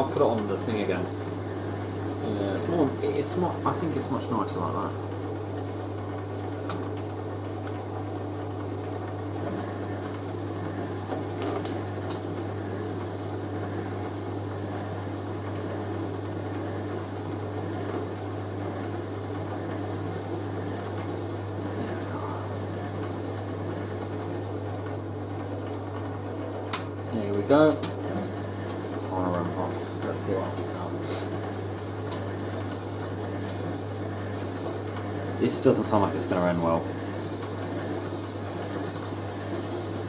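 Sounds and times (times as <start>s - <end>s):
washing machine running: 0.0s - 40.0s.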